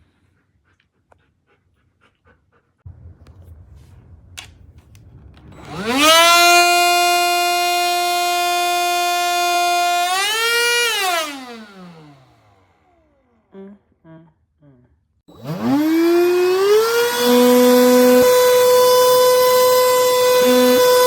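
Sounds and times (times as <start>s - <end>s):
low rumble: 2.8s - 6.3s
vacuum motor whine: 5.6s - 13.4s, 15.3s - 21.0s.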